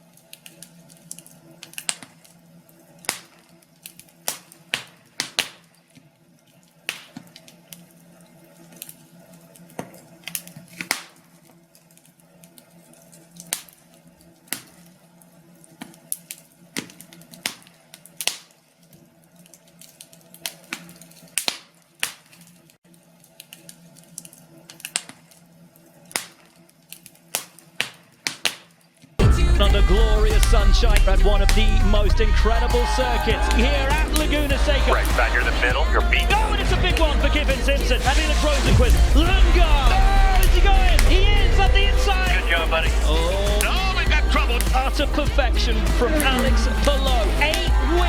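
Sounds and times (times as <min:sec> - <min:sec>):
fireplace fire crackling: 0:00.0 - 0:48.0
faint low hum: 0:29.2 - 0:48.0.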